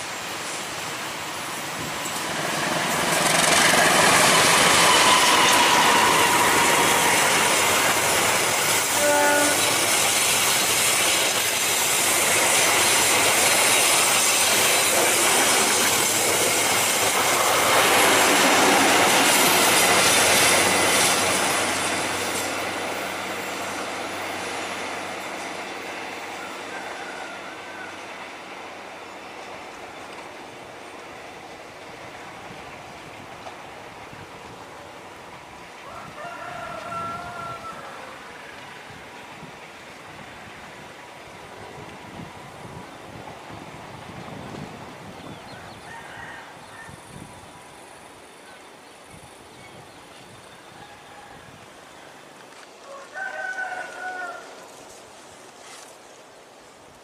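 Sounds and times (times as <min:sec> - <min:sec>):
diesel locomotive engine rumble: 0:00.0 - 0:45.6.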